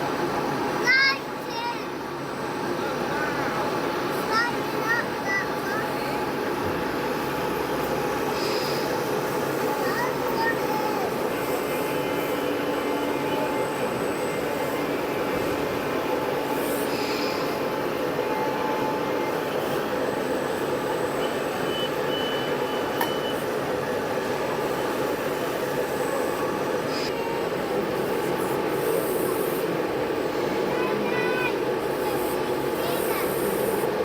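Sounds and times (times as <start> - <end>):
short high beep: 21.7 - 23.4.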